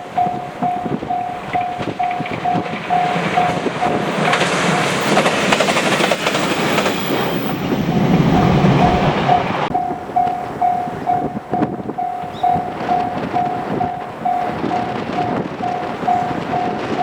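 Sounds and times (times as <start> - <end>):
crossing warning bell dinging: 0.0 - 17.0
train wheels clattering over rail joints: 0.0 - 17.0.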